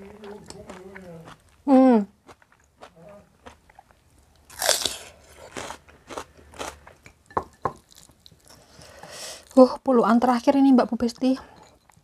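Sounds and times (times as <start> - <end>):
crunchy chewing: 2.2 - 7.0.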